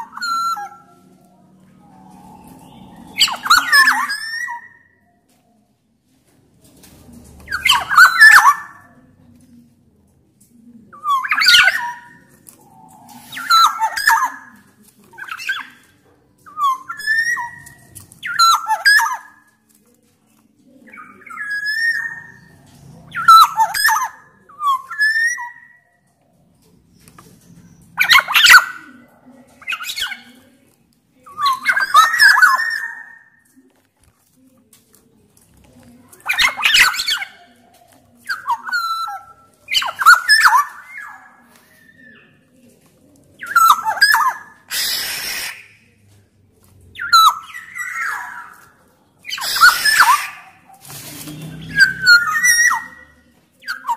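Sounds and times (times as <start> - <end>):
bird singing whistled notes: 1.7 - 5.0
bird calling with fluty whistles: 51.4 - 53.1.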